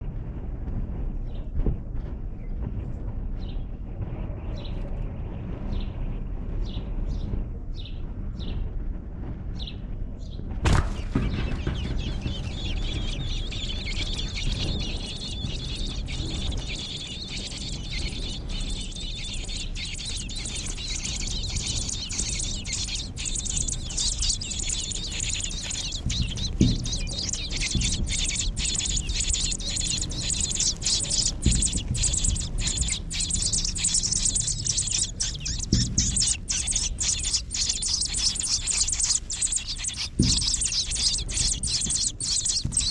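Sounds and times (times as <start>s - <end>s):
low barn rumble: 10.7s - 42.9s
nestling birds chirping: 10.7s - 42.9s
sharp knocks: 10.7s - 42.9s.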